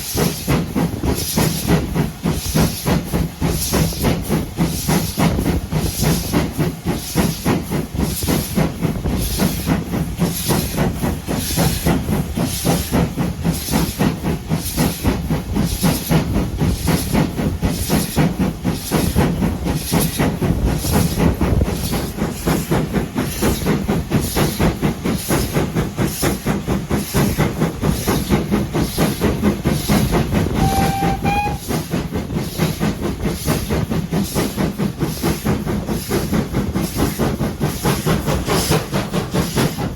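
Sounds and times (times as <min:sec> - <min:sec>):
steam hissing: 0:00.0 - 0:39.9
steam locomotive exhaust beating: 0:00.0 - 0:39.9
train whistle: 0:30.5 - 0:31.8.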